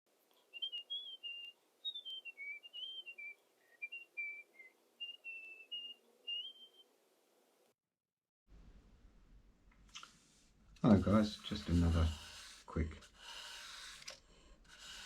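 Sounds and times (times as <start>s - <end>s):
person whistling a tune: 0.5s - 6.8s.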